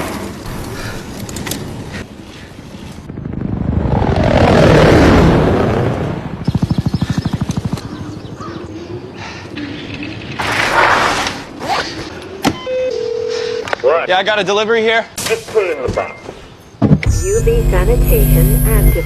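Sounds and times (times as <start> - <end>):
helicopter passing overhead: 1.3 - 8.5.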